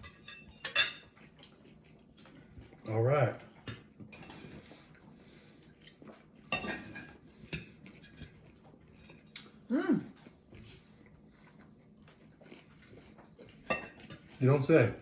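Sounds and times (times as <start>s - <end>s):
cutlery scraping a plate: 0.0s - 1.3s, 3.6s - 4.9s, 5.6s - 9.5s, 13.4s - 14.4s.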